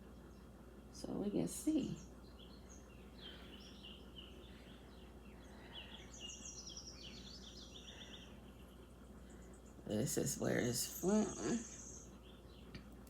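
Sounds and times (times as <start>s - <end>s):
birds chirping and trilling: 0.0s - 13.0s
low background hum: 0.0s - 13.0s.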